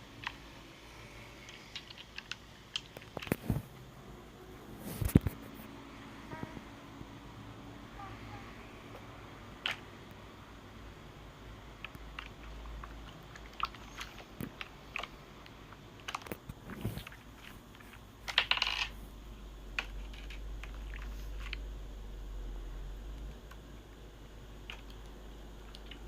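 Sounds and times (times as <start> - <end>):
small hard objects clicking: 1.4 - 3.4, 11.8 - 19.0.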